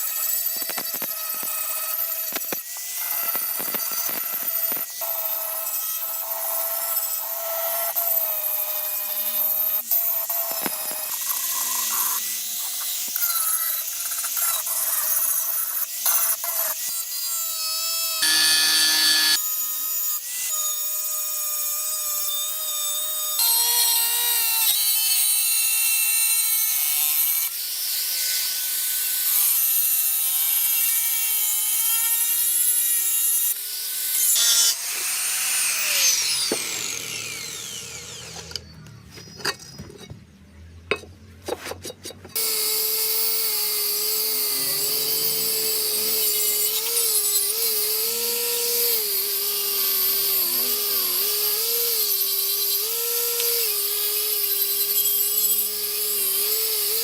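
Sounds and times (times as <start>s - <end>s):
power tool grinding metal: 0.0s - 39.8s, 42.1s - 57.0s
power tool winding down: 18.0s - 20.2s, 33.8s - 39.1s, 42.4s - 57.0s.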